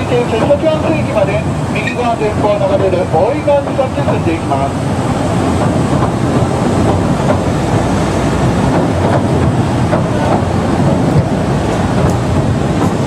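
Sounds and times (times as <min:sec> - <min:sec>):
train wheels rumbling on rails: 0:00.0 - 0:13.0
clicks over rail joints: 0:08.6 - 0:13.0.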